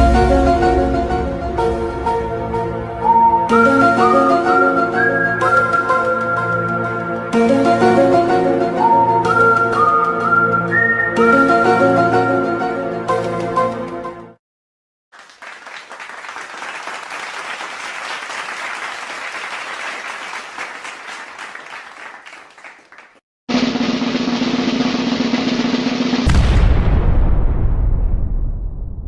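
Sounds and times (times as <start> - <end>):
loud low boom: 0.0 - 3.1, 23.6 - 29.0
music clip: 0.0 - 14.4
dense clapping: 15.2 - 23.2.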